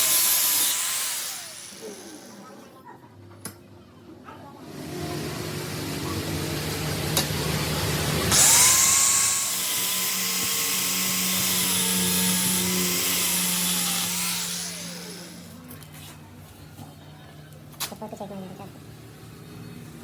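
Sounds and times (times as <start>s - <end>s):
power tool motor whining: 0.0s - 2.4s, 4.7s - 15.6s.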